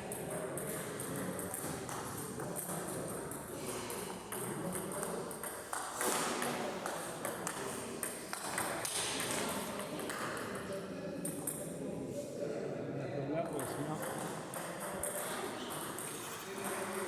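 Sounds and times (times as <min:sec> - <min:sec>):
murmur of voices: 0:06.2 - 0:17.0.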